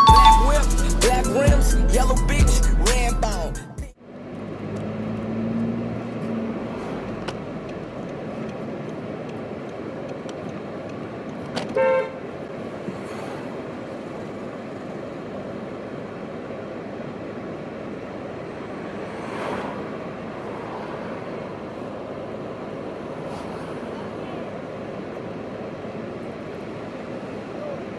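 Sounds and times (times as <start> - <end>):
street traffic noise: 0.0 - 27.9
short car horn toot: 11.7 - 12.2.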